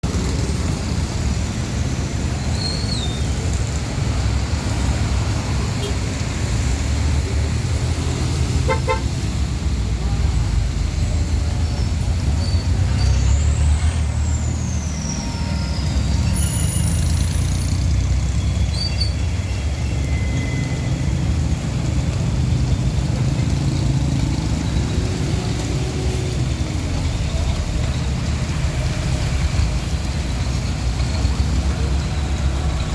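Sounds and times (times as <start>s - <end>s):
low traffic rumble: 0.0s - 32.9s
car horn toot: 8.7s - 9.0s.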